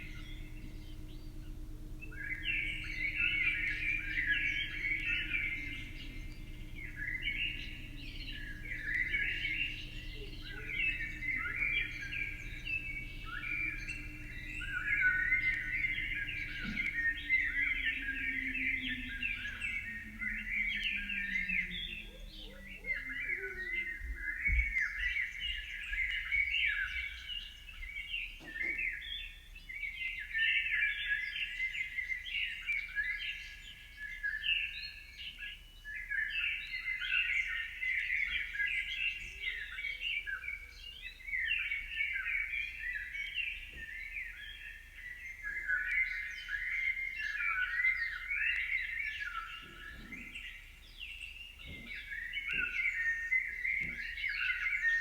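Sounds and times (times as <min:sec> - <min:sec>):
birds chirping and singing: 0:00.0 - 0:26.3.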